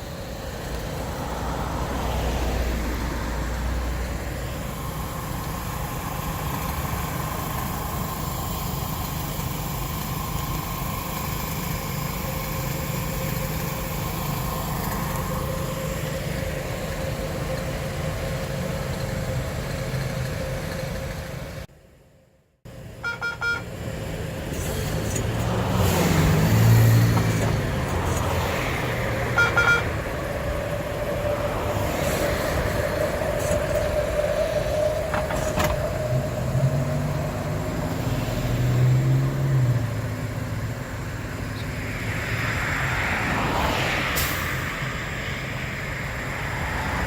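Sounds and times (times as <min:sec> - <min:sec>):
train motor rumble and whine: 0:00.0 - 0:22.1, 0:22.7 - 0:47.0
short beeping signals: 0:23.0 - 0:23.7, 0:29.4 - 0:29.9.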